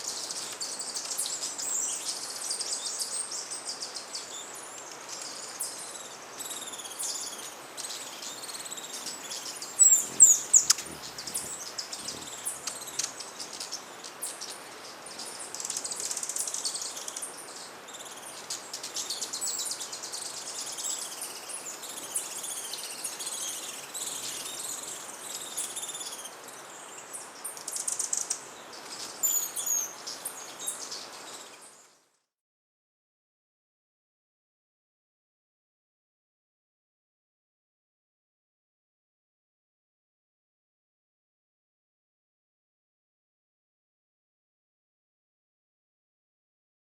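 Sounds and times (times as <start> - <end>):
hummingbirds chipping and twittering: 8.0 - 13.9.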